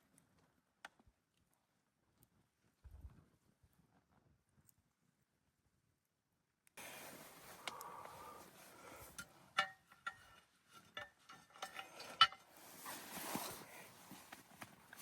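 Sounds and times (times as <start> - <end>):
handling and rustling: 6.8 - 15.0.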